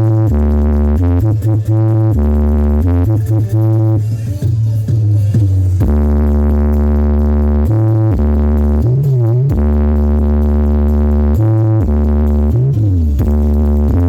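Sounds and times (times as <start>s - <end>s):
electronic dance music: 0.0s - 14.0s.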